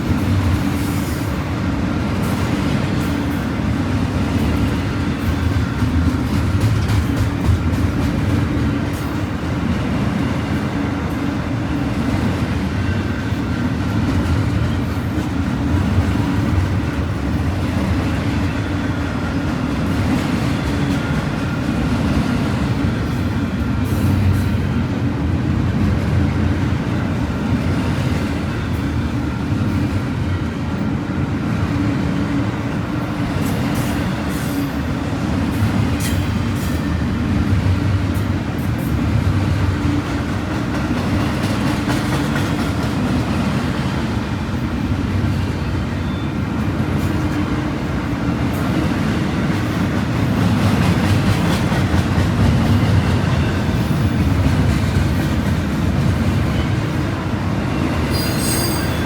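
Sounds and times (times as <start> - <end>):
train wheels rumbling on rail: 0.0 - 59.0
high wheel squeal: 57.7 - 59.0.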